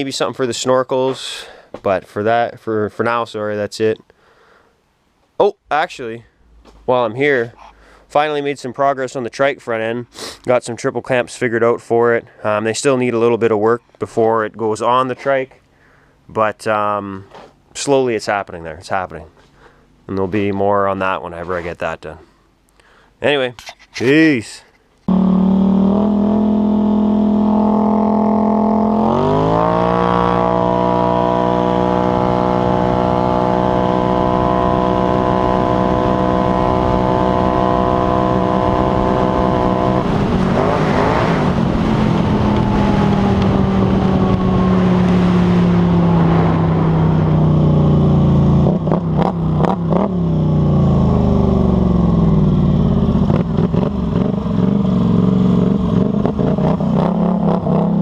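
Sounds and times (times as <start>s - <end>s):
atv engine revving: 25.0s - 58.0s.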